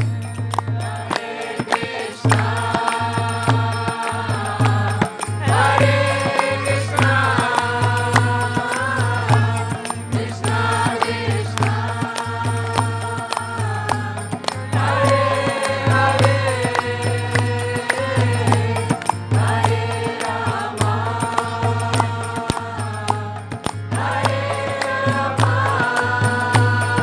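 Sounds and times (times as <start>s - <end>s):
beating drum: 0.0s - 27.0s
voices chanting together: 0.7s - 27.0s.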